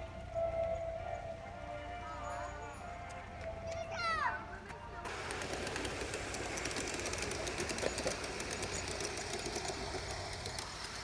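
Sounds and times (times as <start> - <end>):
fine rapid ticks: 5.1 - 11.0
small machine whirring: 5.1 - 11.0.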